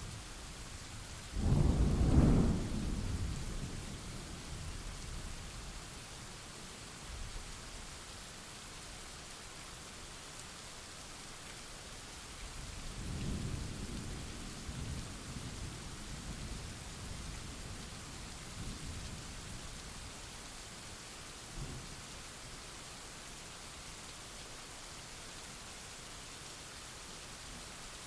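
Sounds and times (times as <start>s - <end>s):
steady rain hiss: 0.0s - 28.0s
low rumble of thunder: 1.3s - 5.6s, 12.6s - 20.1s, 21.5s - 22.0s.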